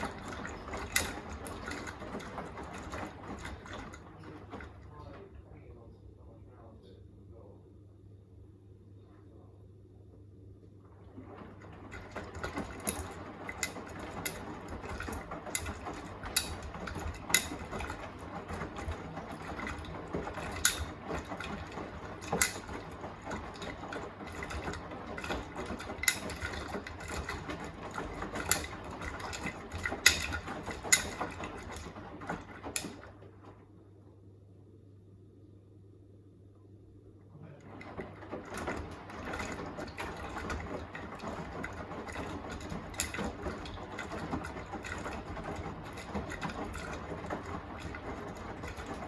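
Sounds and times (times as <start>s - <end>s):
washing machine drum churning: 0.0s - 5.9s, 10.6s - 34.2s, 37.2s - 49.0s
sharp clicks and knocks: 11.3s - 33.2s.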